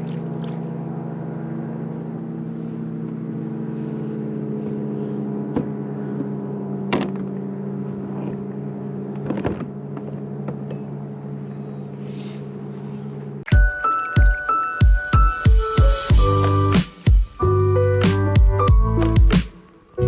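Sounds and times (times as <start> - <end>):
boat motor droning: 0.0 - 20.0
music: 13.5 - 20.0.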